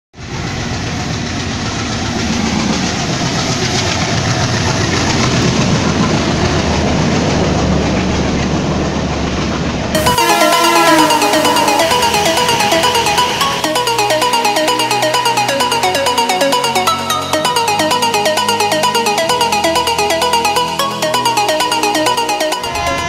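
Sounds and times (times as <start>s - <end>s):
train wheels on rails: 0.2s - 14.9s
electronic music: 10.0s - 23.0s.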